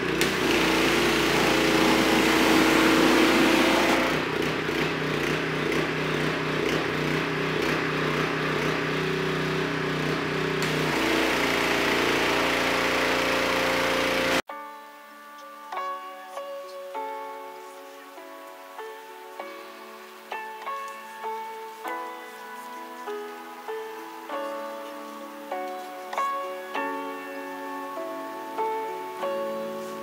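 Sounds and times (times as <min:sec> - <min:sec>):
pressure washer engine drone: 0:00.0 - 0:14.5.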